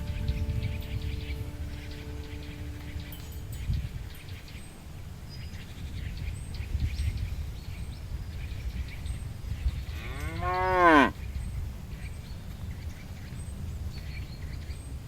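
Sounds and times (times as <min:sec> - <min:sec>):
low rumbling noise: 0:00.0 - 0:15.0
cow mooing: 0:10.0 - 0:11.2.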